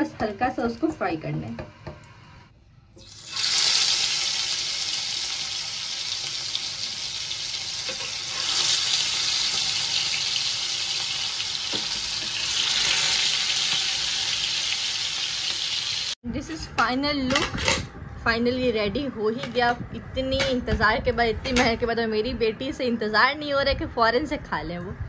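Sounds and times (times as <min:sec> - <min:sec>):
food sizzling in a frying pan: 0:03.0 - 0:16.2.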